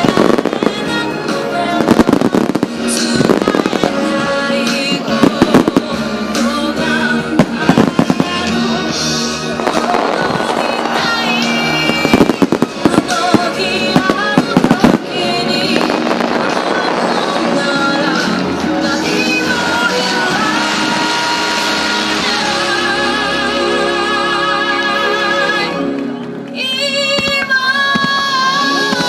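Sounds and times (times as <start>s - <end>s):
fireworks bangs: 0.0s - 23.5s
loud music: 0.0s - 26.4s.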